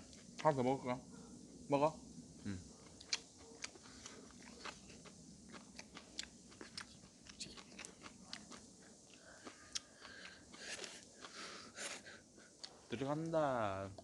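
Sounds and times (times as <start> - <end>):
chewing and crunching: 2.7 - 12.9.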